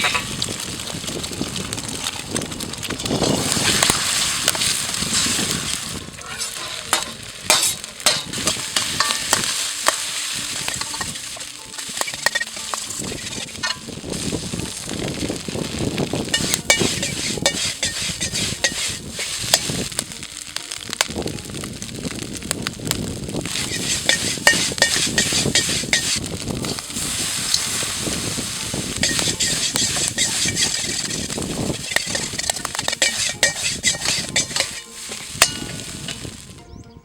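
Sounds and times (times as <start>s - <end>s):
rice sizzling in a wok: 0.0s - 36.6s
metal spatula clicking and scraping: 2.8s - 14.2s, 16.3s - 19.8s, 23.5s - 26.8s, 28.9s - 36.3s.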